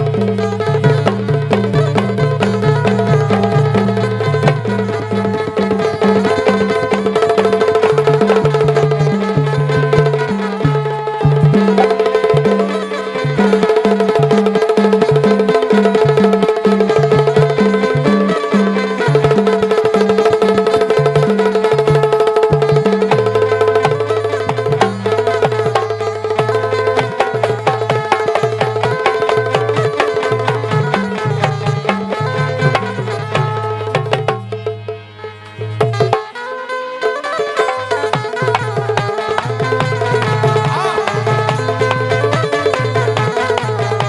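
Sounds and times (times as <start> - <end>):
hand percussion: 0.0 - 44.0.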